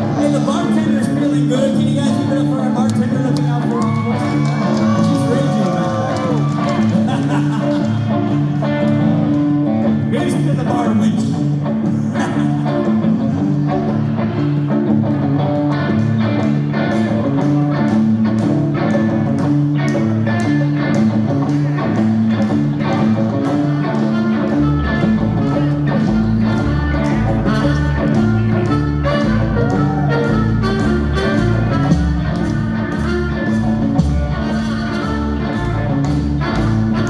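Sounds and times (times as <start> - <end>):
ska-punk band playing live: 0.0 - 37.0
deep bass line: 16.0 - 37.0.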